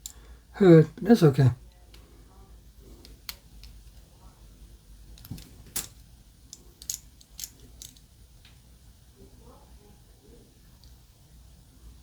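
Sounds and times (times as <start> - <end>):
model car parts clicking: 3.0 - 4.1, 5.1 - 8.1.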